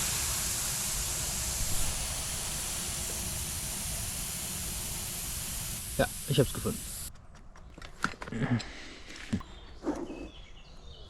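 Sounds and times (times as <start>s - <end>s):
air hissing from tyre puncture: 0.0s - 7.1s.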